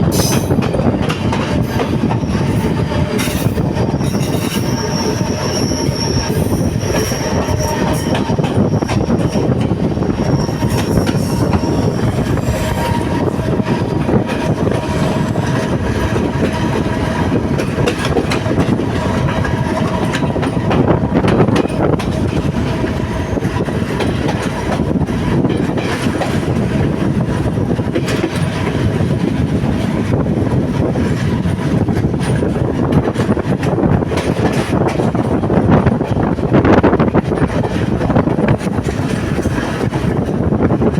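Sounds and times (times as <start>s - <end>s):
train rumbling on rails: 0.0s - 40.9s
train wheel clicks: 0.1s - 40.4s
high wheel squeal: 1.6s - 24.0s.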